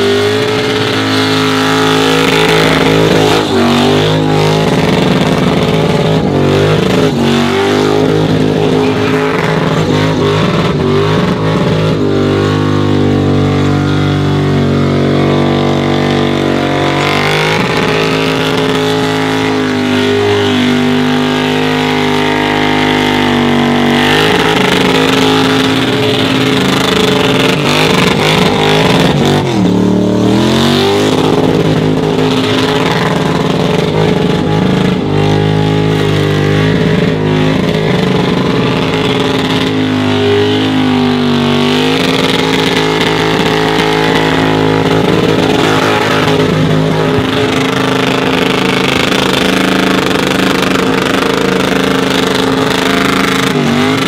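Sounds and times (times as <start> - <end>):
car engine revving high: 0.0 - 54.0.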